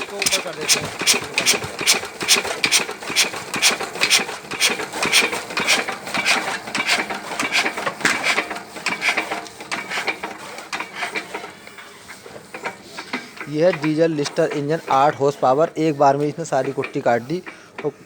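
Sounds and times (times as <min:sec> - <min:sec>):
chaff cutter clacking: 0:00.0 - 0:18.0.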